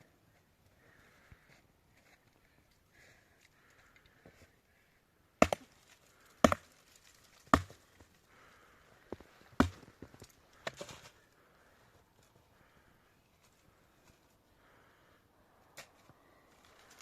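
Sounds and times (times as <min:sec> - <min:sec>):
axe chopping wood: 0:05.4 - 0:05.7, 0:06.4 - 0:06.7, 0:07.5 - 0:07.8, 0:09.6 - 0:09.9.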